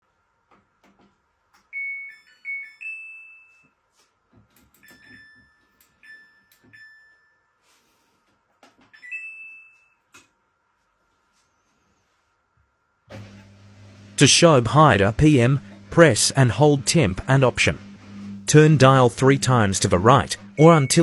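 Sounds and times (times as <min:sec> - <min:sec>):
short beeps: 0:17.0 - 0:21.0.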